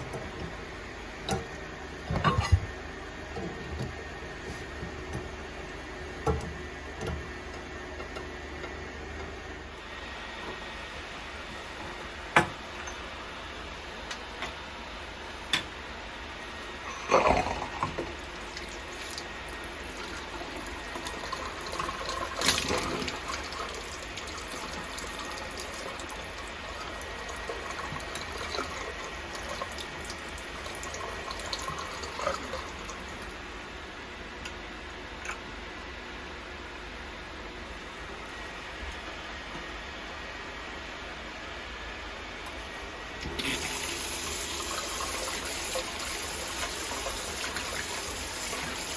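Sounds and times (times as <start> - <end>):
tap water running into basin: 17.8 - 33.4, 43.2 - 48.9.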